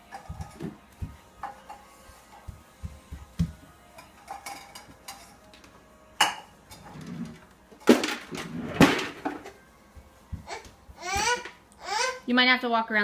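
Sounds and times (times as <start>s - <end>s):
dishes clattering: 4.0s - 5.4s, 6.2s - 9.6s.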